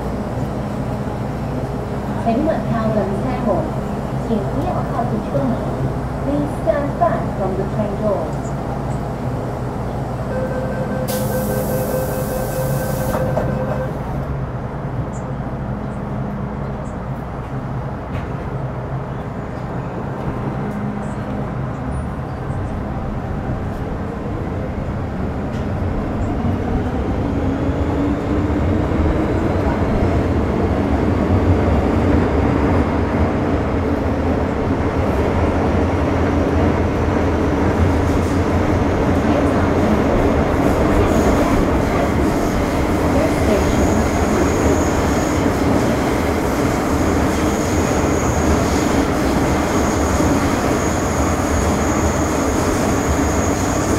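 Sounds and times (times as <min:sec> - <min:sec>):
steady high tone: 0:10.3 - 0:14.1
train traction motor whine: 0:10.3 - 0:14.2.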